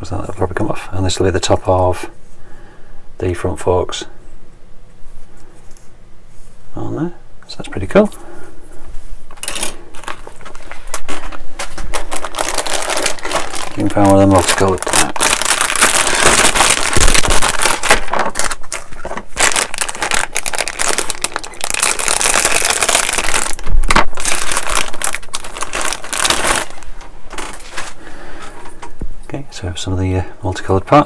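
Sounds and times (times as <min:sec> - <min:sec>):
plastic bag crinkling: 0:09.3 - 0:28.0.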